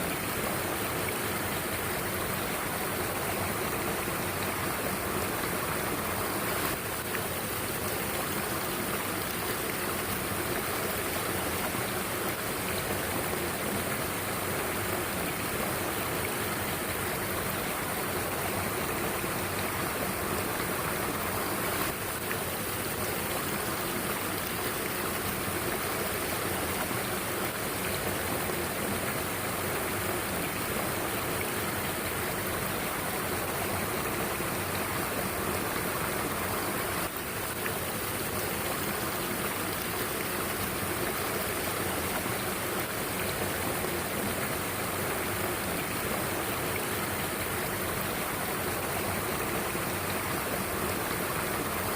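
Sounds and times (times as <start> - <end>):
stream water rushing: 0.0 - 51.9.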